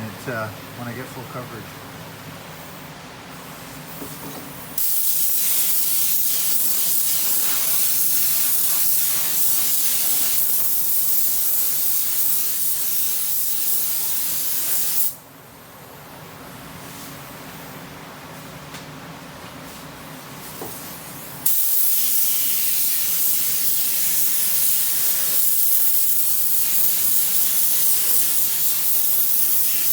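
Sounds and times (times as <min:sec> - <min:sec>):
spray gun hissing: 0:04.8 - 0:15.2, 0:21.5 - 0:29.9.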